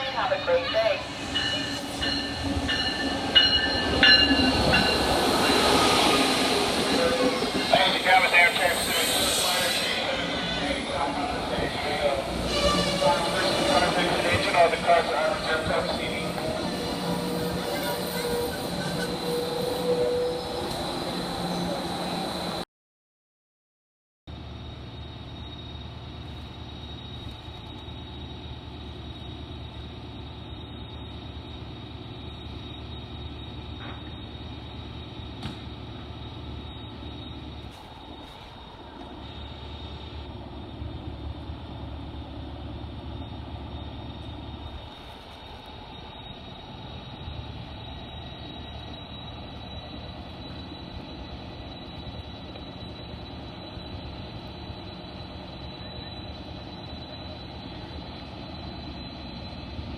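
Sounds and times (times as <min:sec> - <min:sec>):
diesel locomotive idling: 0:00.0 - 0:20.3, 0:24.3 - 0:59.9.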